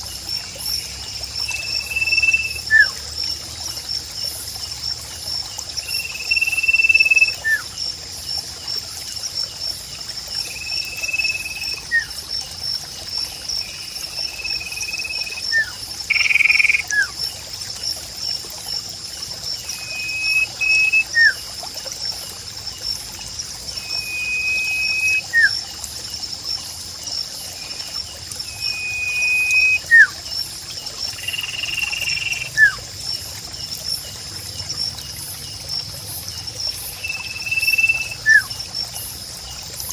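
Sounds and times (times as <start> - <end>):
trickling water: 0.0 - 39.9
bird whistling: 19.8 - 21.4, 23.8 - 25.5, 28.6 - 30.1, 37.3 - 38.5.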